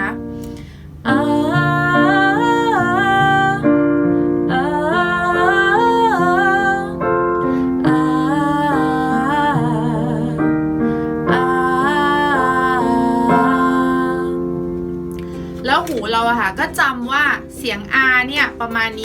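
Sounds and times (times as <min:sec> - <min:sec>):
woman singing on ah vowel: 0:00.0 - 0:00.2, 0:01.0 - 0:14.6
keyboard accompaniment: 0:00.0 - 0:19.0.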